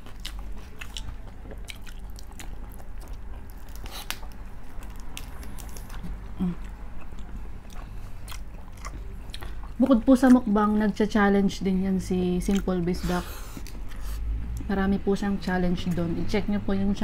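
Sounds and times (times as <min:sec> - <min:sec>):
person chewing: 0:00.0 - 0:10.5, 0:12.5 - 0:14.6.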